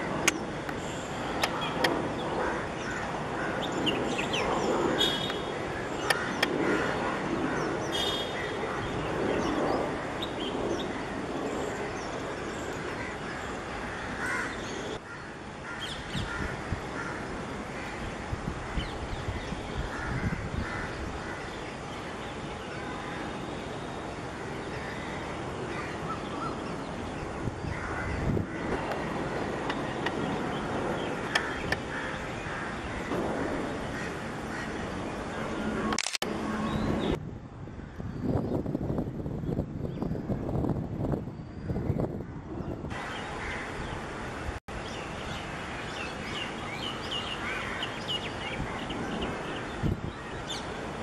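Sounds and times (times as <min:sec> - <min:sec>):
outdoor background noise: 0:00.0 - 0:51.0
birds calling sharply: 0:00.2 - 0:17.1.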